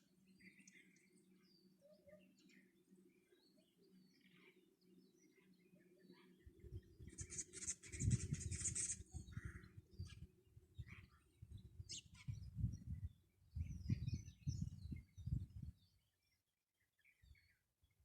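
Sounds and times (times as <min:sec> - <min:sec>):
birds chirping and calling: 0:03.8 - 0:15.6.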